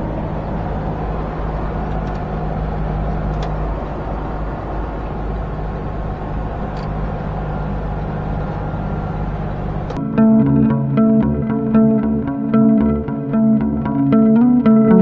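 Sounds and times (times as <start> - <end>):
truck engine and road noise: 0.0 - 15.0
guitar music: 10.0 - 15.0.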